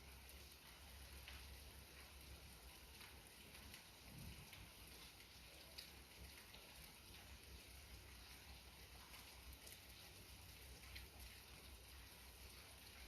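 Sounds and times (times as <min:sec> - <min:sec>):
light rain patter: 0:00.0 - 0:13.0
single raindrop ticks: 0:00.6 - 0:02.2.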